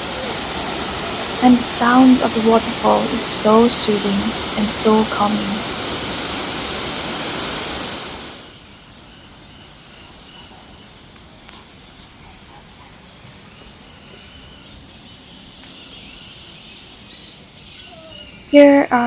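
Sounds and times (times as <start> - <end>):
waterfall rushing: 0.0 - 8.6
faint bird chirps: 12.7 - 18.8.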